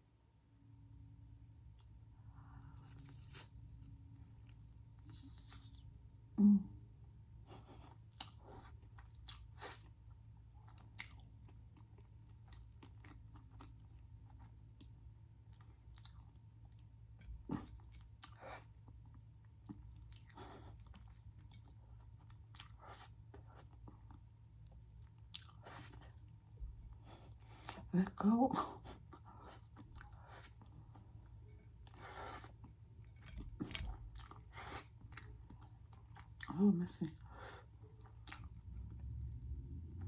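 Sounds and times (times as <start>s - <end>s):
crunchy chewing: 17.5s - 24.2s, 24.9s - 27.9s, 29.0s - 36.5s.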